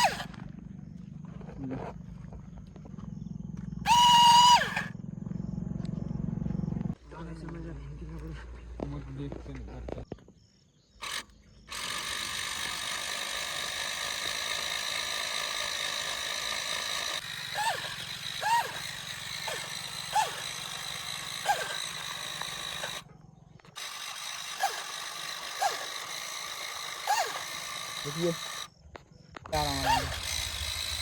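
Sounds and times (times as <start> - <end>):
small electric motor whining: 0.0 - 1.4, 2.6 - 7.0, 11.0 - 31.0
low hum: 0.0 - 7.1, 28.6 - 31.0
short falling chirps: 3.8 - 5.0.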